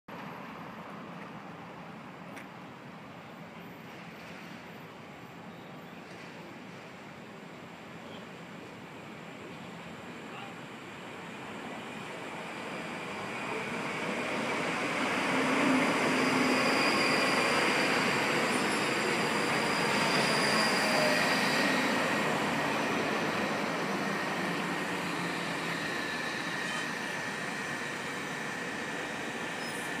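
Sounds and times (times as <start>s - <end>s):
electric train passing: 6.5s - 30.0s
thin high whine: 12.4s - 30.0s.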